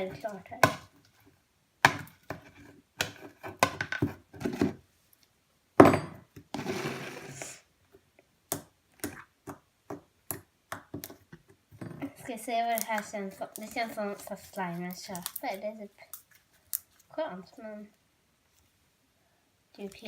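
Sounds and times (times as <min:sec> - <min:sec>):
rustling scrape: 0:06.6 - 0:07.6.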